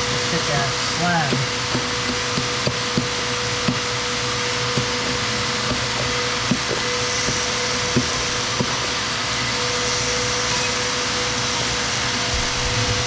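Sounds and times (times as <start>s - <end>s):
small motor whooshing and whining: 9.2s - 13.0s.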